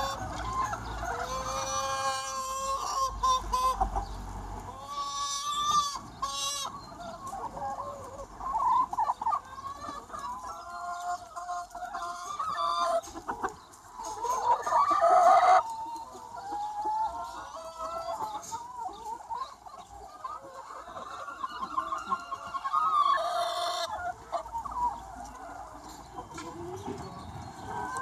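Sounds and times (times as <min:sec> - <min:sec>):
hens clucking and calling: 0:00.0 - 0:28.0.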